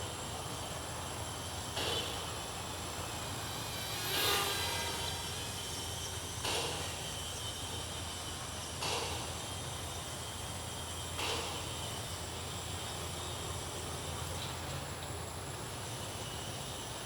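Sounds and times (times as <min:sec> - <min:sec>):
small electric motors whining: 0:00.0 - 0:17.0
brief whooshes: 0:03.0 - 0:05.9.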